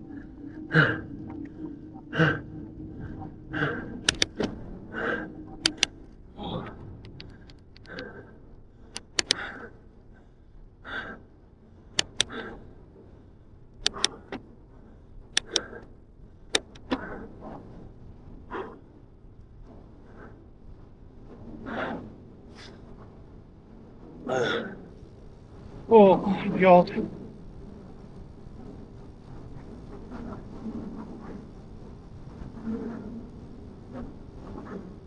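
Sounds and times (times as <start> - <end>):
bike clicks and rattles: 4.1 - 4.5, 5.7 - 5.9, 7.1 - 8.0, 9.0 - 9.4, 15.4 - 15.8, 16.5 - 17.2.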